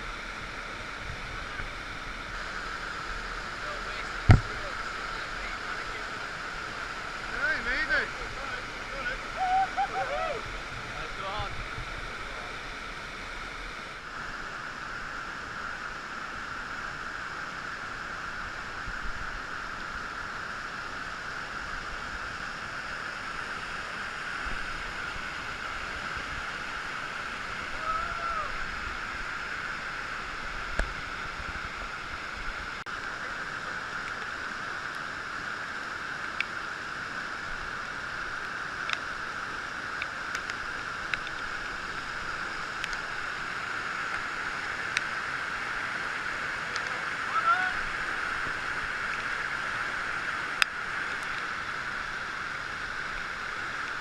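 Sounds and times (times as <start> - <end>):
river rushing over rapids: 0.0 - 54.0.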